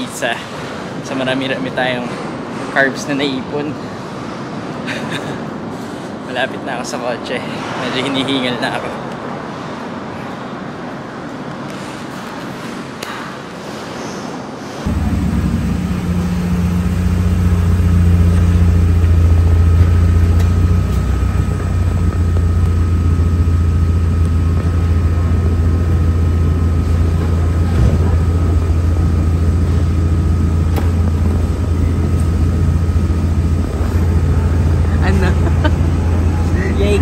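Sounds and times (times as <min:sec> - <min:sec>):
faint engine whine: 0:13.4 - 0:37.0
car engine idling: 0:14.9 - 0:37.0.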